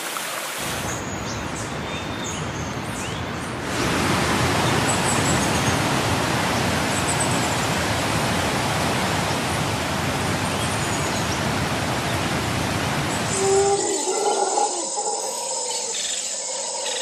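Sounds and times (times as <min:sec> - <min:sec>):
flowing water rushing: 0:00.0 - 0:16.8.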